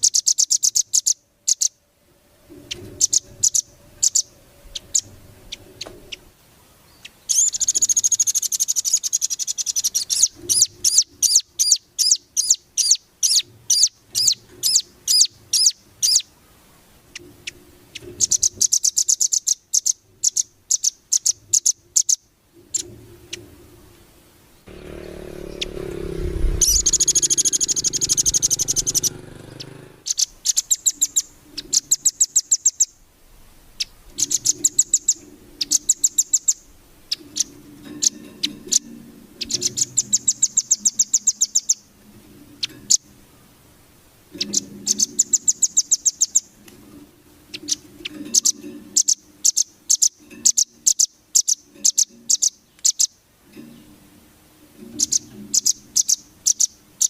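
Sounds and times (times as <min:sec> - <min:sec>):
songbird trilling and chirping: 0:00.0 - 0:01.8, 0:02.6 - 0:16.3, 0:17.1 - 0:23.4, 0:24.6 - 0:33.0, 0:33.8 - 0:41.9, 0:44.3 - 0:46.6, 0:47.5 - 0:53.9, 0:54.8 - 0:57.0
low rumble: 0:24.6 - 0:30.0.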